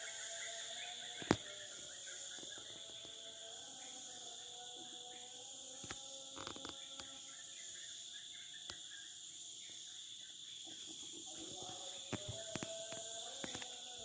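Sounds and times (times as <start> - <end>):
crickets and insects chirping: 0.0 - 14.0
faint clicks: 12.1 - 13.8.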